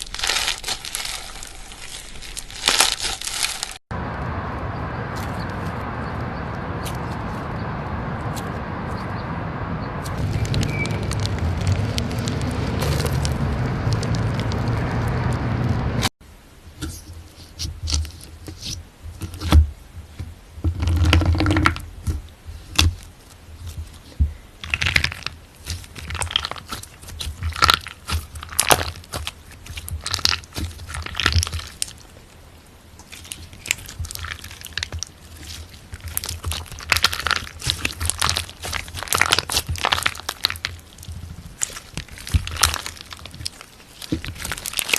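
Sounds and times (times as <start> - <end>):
crackling and crunching pops: 0.0 - 3.8, 10.0 - 16.1, 20.6 - 32.4, 33.0 - 44.9
slime squeezed by hand: 24.6 - 32.0, 33.1 - 44.9.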